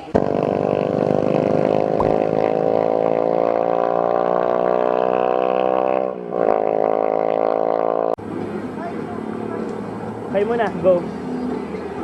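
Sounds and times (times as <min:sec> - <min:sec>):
motor engine running: 0:00.0 - 0:04.5.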